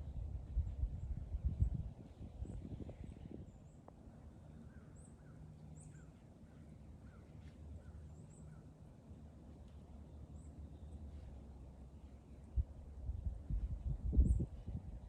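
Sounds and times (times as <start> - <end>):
wind rumbling on microphone: 0.0 - 3.7, 12.4 - 15.0
faint bird chirps: 2.4 - 8.8.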